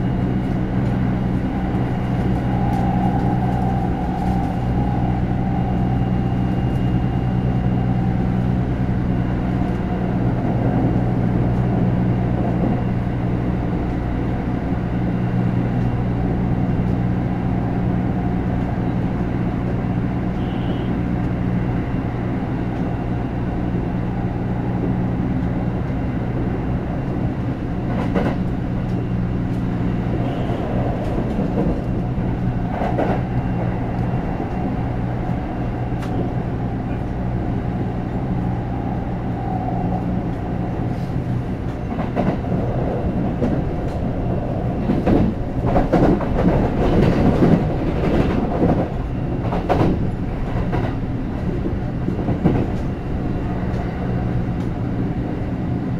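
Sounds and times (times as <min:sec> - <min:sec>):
train running gear hum: 0:00.0 - 0:55.9
wheels clacking over rail joints: 0:41.6 - 0:53.9.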